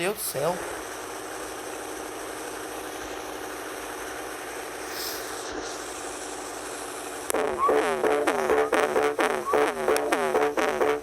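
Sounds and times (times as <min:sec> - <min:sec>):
music: 0:07.3 - 0:11.0.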